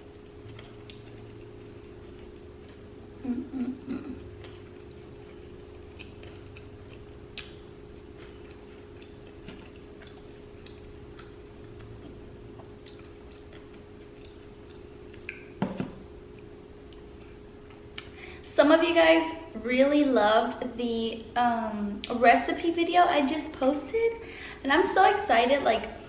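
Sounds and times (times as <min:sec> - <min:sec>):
steady low hum: 0:00.0 - 0:26.0
mouth clicks and chewing: 0:00.4 - 0:02.8, 0:03.9 - 0:15.6.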